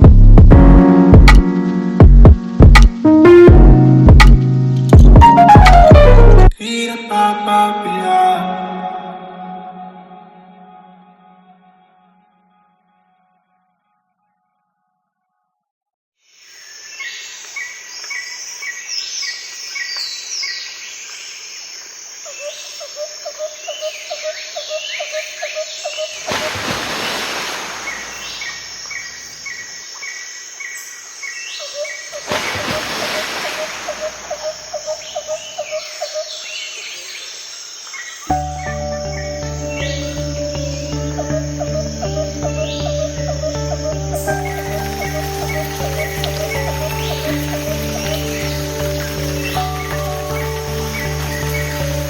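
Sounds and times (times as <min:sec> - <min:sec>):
birds chirping: 0:22.3 - 0:52.0.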